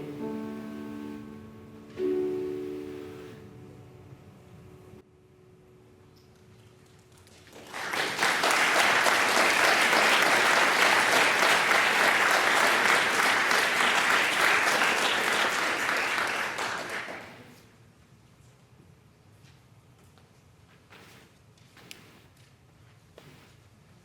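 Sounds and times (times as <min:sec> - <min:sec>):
congregation applauding: 0:07.1 - 0:17.6.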